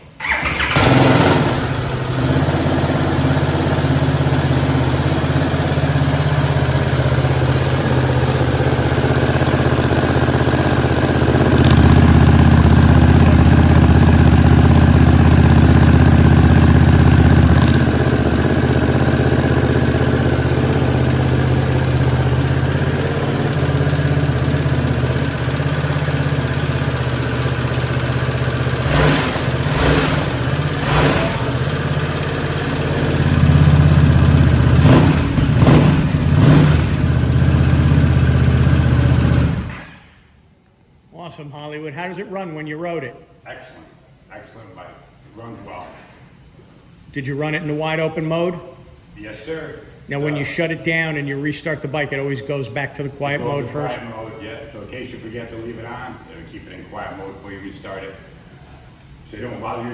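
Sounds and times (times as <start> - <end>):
motorcycle engine idling: 0.2 - 39.9.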